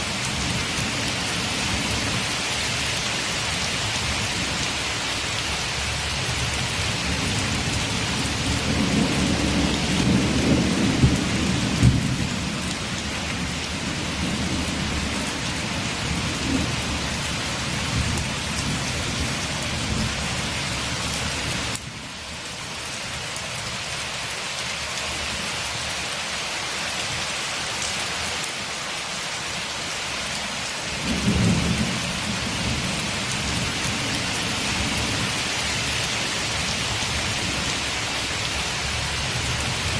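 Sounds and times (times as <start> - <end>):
rain on a window: 0.0 - 39.9
thunder rumbling: 6.8 - 20.2, 31.0 - 35.4.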